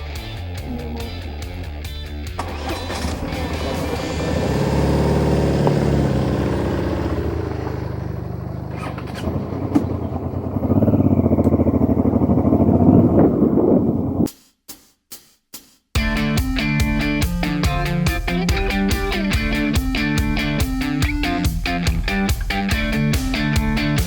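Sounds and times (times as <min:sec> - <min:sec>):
motorcycle engine revving: 0:00.6 - 0:14.2.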